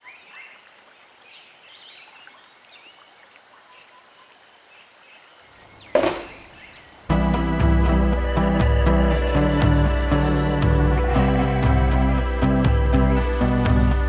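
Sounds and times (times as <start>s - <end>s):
small birds chirping: 0.0s - 7.2s
loud thump: 6.0s - 6.6s.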